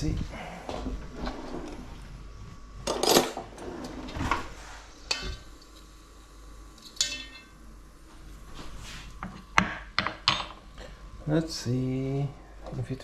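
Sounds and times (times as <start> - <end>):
utensils clattering on dishes: 2.8 - 4.0, 5.1 - 5.5, 6.8 - 7.5.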